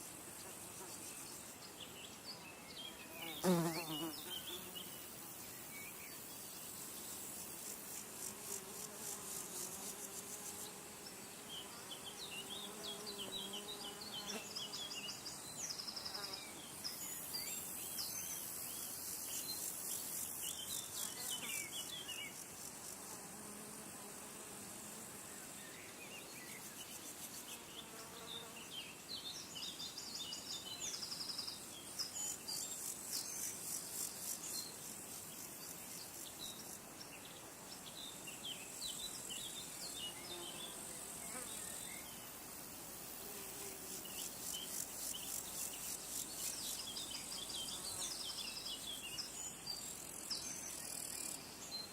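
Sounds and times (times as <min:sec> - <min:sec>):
small birds chirping: 0:00.5 - 0:07.3
insects trilling: 0:03.2 - 0:51.9.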